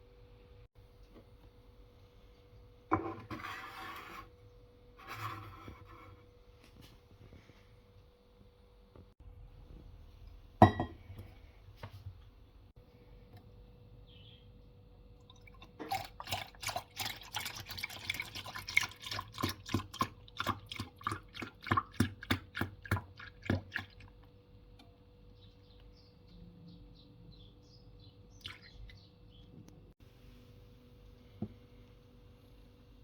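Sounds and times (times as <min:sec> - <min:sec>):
faint steady hum: 0:04.2 - 0:33.0
coffee machine spurting and dripping: 0:15.2 - 0:24.9.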